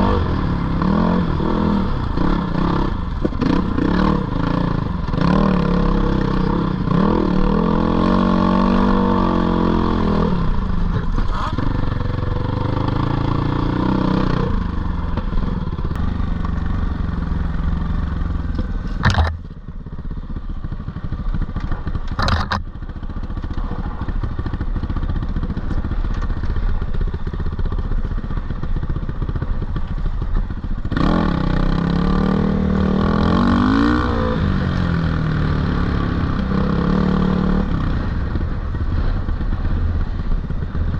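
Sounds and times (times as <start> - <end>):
dirt bike engine revving: 0.0 - 10.6, 11.3 - 14.7, 30.9 - 37.8.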